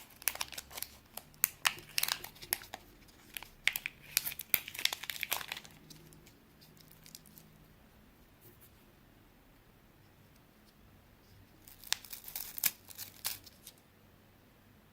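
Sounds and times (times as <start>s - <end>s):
plastic crinkling: 0.0s - 7.5s, 11.6s - 13.8s.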